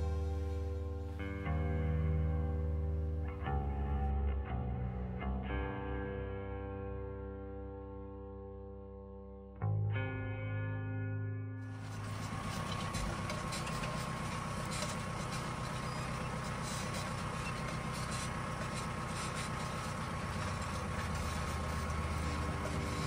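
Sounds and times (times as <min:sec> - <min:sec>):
tractor engine running: 0:00.0 - 0:01.9, 0:11.7 - 0:23.0
high whine: 0:00.0 - 0:04.3, 0:11.7 - 0:23.0.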